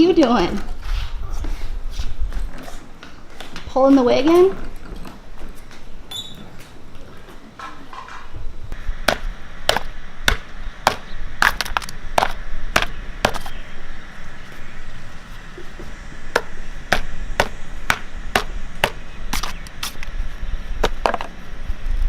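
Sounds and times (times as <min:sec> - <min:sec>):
low steady rumble: 0:08.4 - 0:22.0.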